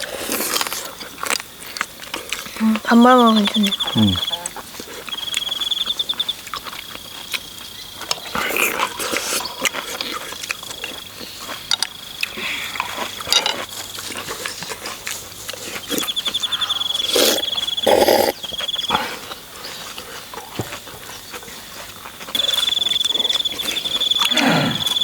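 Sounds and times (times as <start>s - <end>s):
insect trilling: 2.5s - 9.8s, 15.8s - 19.0s, 22.3s - 25.0s
slurping soup: 8.2s - 10.8s, 17.0s - 20.5s.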